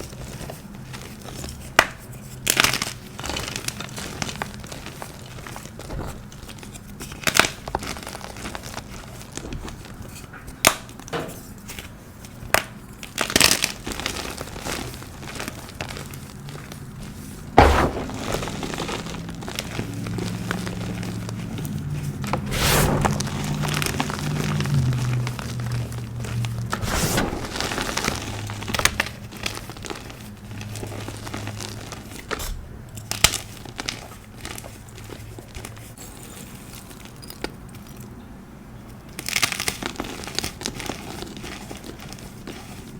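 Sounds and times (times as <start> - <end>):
chalk crumbling crackle: 13.1 - 32.4.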